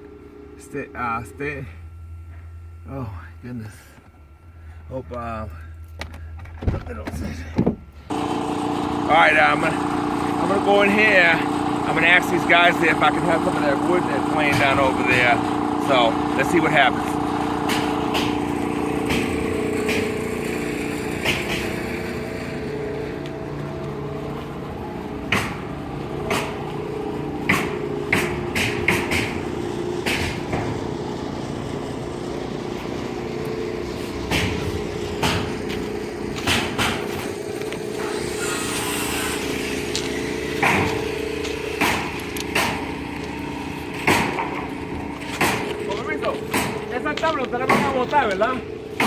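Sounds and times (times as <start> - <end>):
steady engine hum: 0.0 - 49.0
sharp knocks and clicks: 27.5 - 29.4, 46.5 - 46.8.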